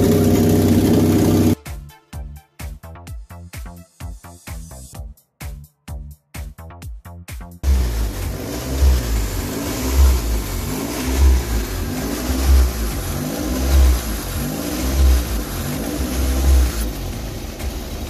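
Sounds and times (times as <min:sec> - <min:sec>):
engine revving up and down: 0:00.0 - 0:01.6, 0:07.6 - 0:18.0.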